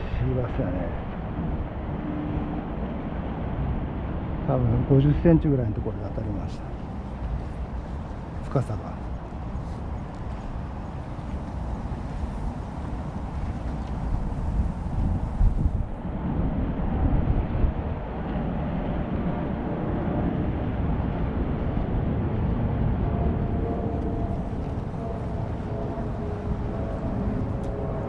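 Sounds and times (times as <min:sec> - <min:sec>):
faint engine drone: 0:00.0 - 0:28.0
low outdoor rumble: 0:00.0 - 0:28.0.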